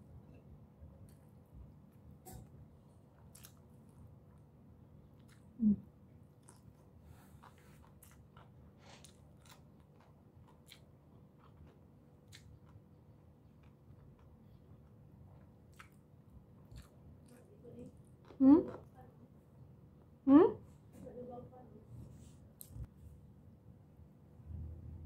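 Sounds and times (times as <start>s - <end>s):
person chewing food: 0.4s - 18.9s.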